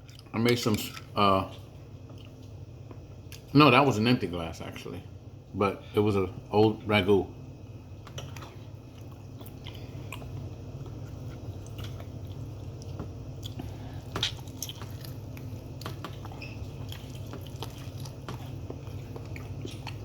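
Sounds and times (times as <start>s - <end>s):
chewing with wet mouth clicks: 0.0s - 3.5s, 8.0s - 20.0s.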